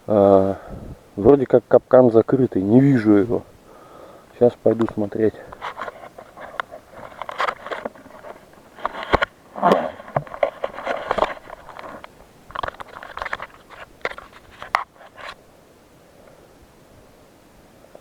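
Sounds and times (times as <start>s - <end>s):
scraping and crackling: 4.3s - 15.4s
footsteps crunching in snow: 4.7s - 12.0s.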